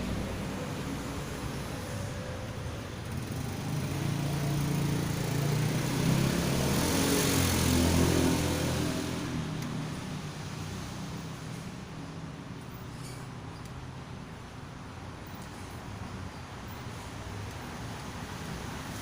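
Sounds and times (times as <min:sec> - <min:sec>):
vehicle engine passing: 0:03.0 - 0:11.3.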